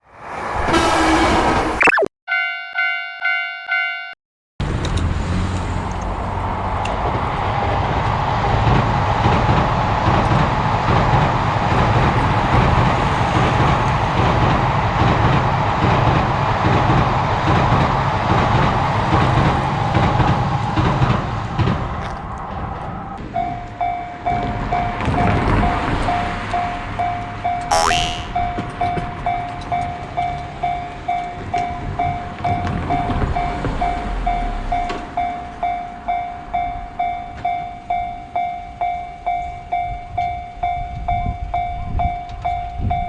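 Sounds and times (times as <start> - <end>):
train rumbling past on rails: 0.0 - 1.8, 4.7 - 23.1.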